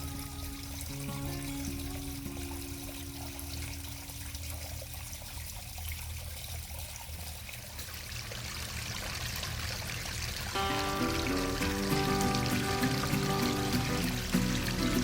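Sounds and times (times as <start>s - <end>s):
water trickling in stream: 0.0s - 15.0s
background music held note: 10.6s - 15.0s.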